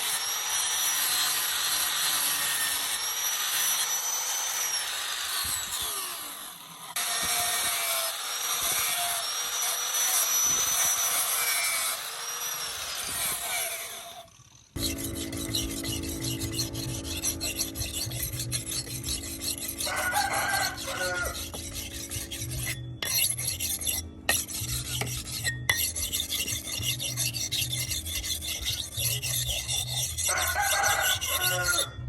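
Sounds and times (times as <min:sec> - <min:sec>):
low hum: 0:14.8 - 0:28.2
hand filing scraping: 0:14.8 - 0:31.9
rooster crowing: 0:19.8 - 0:21.6, 0:30.3 - 0:32.0.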